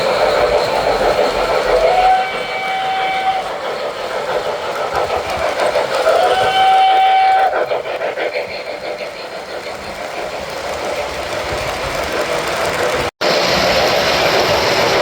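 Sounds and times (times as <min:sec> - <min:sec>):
model train rolling and chuffing: 0:00.0 - 0:15.0
steam whistle: 0:01.8 - 0:03.6, 0:06.2 - 0:07.6.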